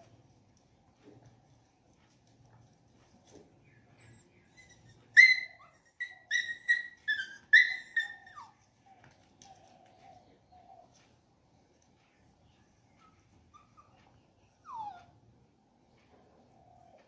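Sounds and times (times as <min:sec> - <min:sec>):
dog whining: 0:04.0 - 0:08.7, 0:13.0 - 0:15.2.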